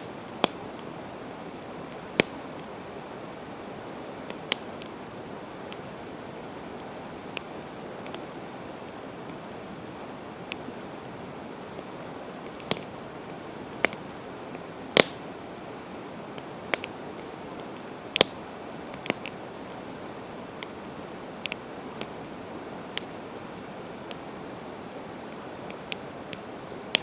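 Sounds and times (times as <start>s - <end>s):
campfire popping and crackling: 4.1s - 5.0s, 6.8s - 19.9s
faint high chirp: 9.3s - 16.7s.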